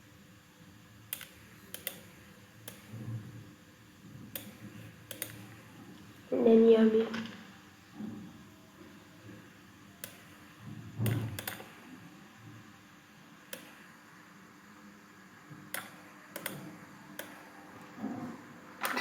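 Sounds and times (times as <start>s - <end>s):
faint room noise: 0.0s - 19.0s
computer mouse and keyboard clicks: 1.1s - 3.1s, 4.3s - 5.6s, 10.0s - 10.3s, 11.0s - 11.8s, 15.6s - 18.2s.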